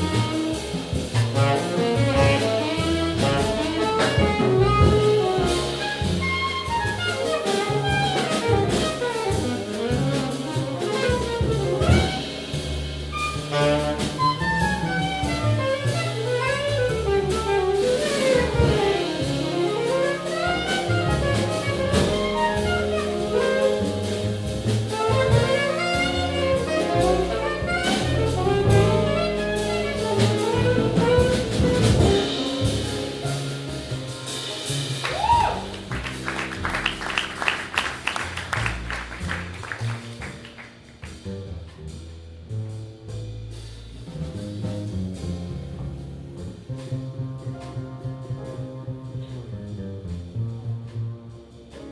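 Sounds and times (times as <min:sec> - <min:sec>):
drums with busy cymbals: 0:00.0 - 0:37.7
bass line: 0:00.0 - 0:51.9
jazz solo line: 0:00.0 - 0:51.9.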